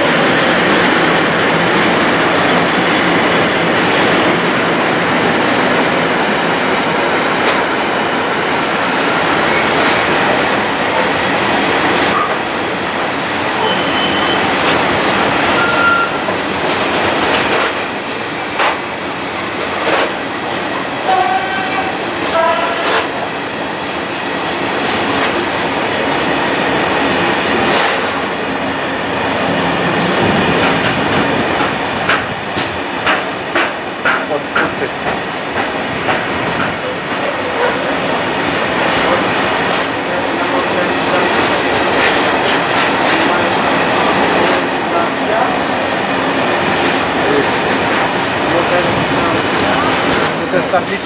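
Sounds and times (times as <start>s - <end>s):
freight train wheels clicking over rail joints: 14.4s - 21.3s, 24.6s - 28.7s, 29.8s - 37.9s.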